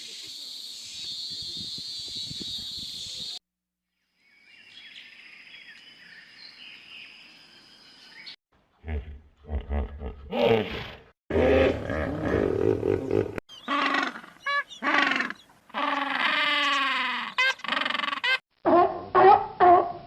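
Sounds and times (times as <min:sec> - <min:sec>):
rough animal roar: 0:09.0 - 0:14.2
long animal call falling in pitch: 0:13.7 - 0:19.8.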